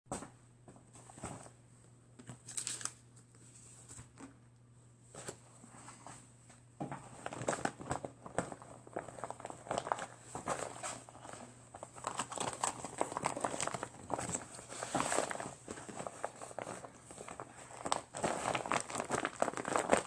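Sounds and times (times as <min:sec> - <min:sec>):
rustling and crinkling handling: 0:00.1 - 0:04.4, 0:05.0 - 0:20.0
faint steady hum: 0:00.1 - 0:20.0.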